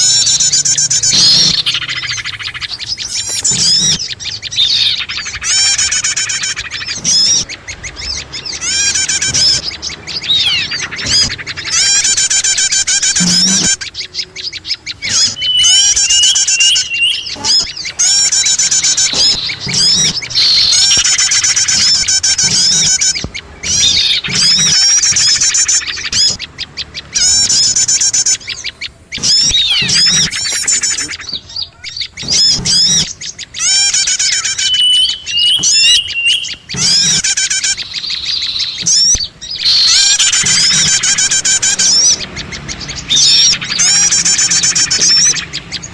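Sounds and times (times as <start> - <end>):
small songbirds chirping and trilling: 0.0 - 45.9
high whistled bird-lure notes: 15.0 - 25.5.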